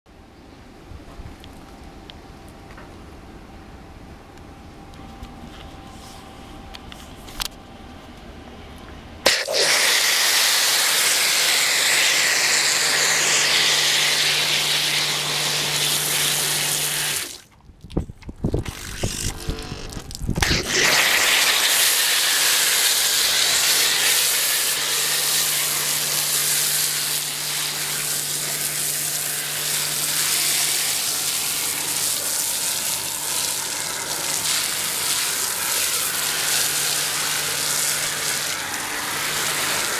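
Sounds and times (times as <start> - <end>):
low pump hum: 0.2 - 39.9
pressure washer spraying: 9.3 - 17.4, 20.4 - 39.9.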